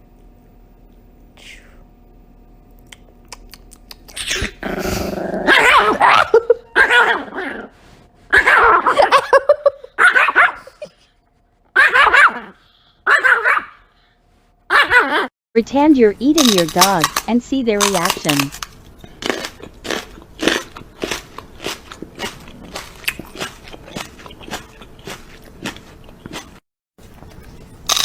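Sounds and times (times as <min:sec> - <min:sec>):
dog growling and barking: 0:04.2 - 0:11.1, 0:11.7 - 0:14.0, 0:14.7 - 0:15.3.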